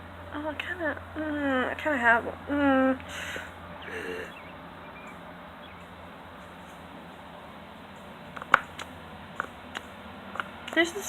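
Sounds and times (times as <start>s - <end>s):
low background hum: 0.0s - 11.0s
person breathing: 3.0s - 4.4s
faint bird chirps: 3.4s - 7.2s.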